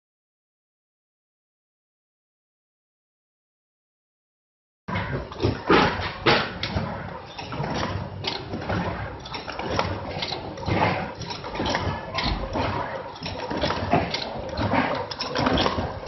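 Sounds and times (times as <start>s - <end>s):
wrapping machine clatter and knocks: 4.9s - 16.0s.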